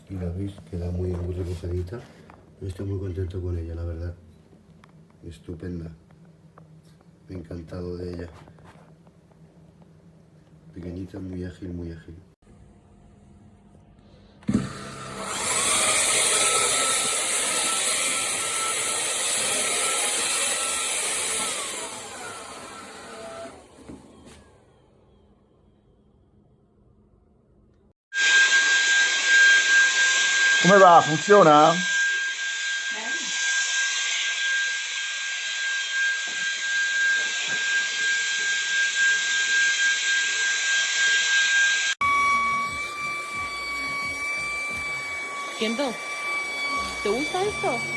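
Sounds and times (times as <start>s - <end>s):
vacuum motor whining: 14.4s - 25.2s, 28.2s - 47.9s.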